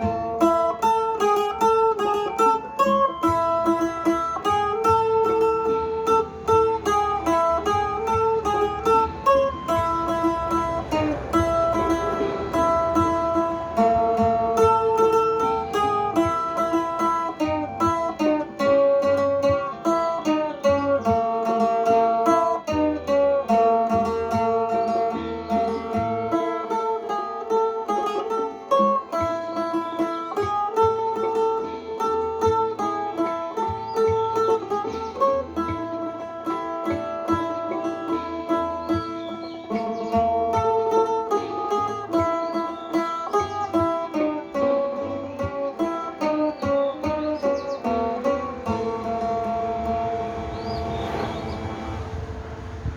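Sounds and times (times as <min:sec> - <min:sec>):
plucked lute melody: 0:00.0 - 0:52.9
low bass line: 0:04.1 - 0:17.2, 0:47.1 - 0:52.9.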